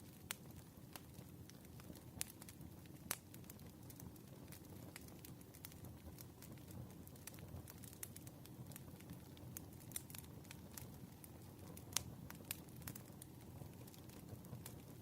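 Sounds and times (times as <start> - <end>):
firewood crackling and popping: 0.0 - 15.0
low rumble of flame: 0.0 - 15.0.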